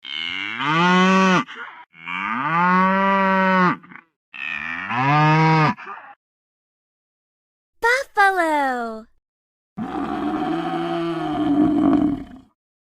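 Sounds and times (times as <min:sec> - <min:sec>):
cow mooing: 0:00.0 - 0:05.9.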